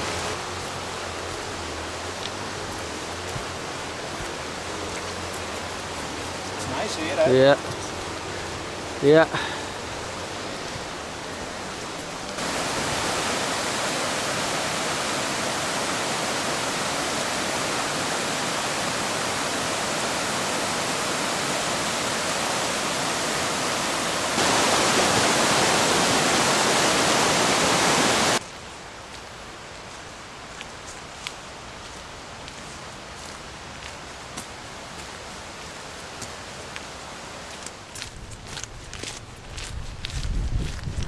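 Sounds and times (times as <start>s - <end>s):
waterfall rushing: 0.0s - 28.4s.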